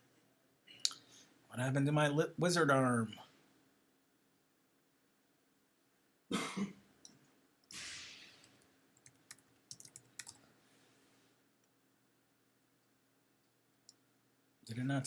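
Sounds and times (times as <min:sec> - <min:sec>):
man coughing: 0:06.3 - 0:06.8
computer mouse clicks: 0:07.0 - 0:10.4.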